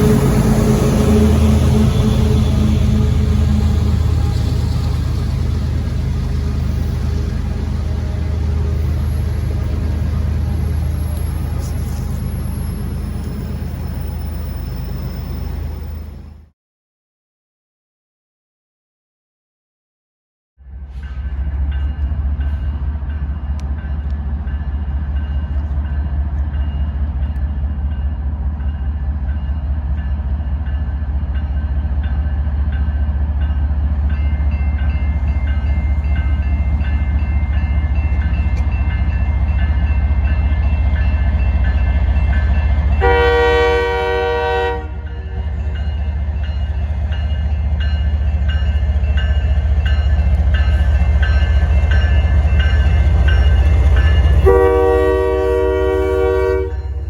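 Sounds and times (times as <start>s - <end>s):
locomotive horn blast: 0.0s - 5.1s, 43.0s - 45.3s, 54.3s - 57.0s
diesel locomotive rumble: 0.0s - 16.5s, 20.7s - 57.0s.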